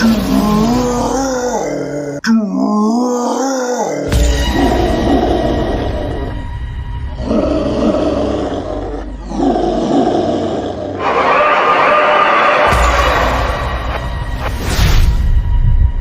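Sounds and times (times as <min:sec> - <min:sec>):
animal roars: 0:07.1 - 0:11.4.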